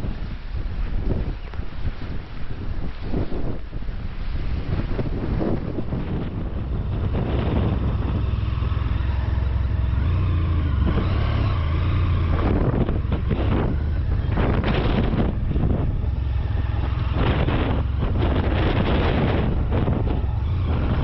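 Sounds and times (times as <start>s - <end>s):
motorcycle engine revving: 6.0s - 21.0s.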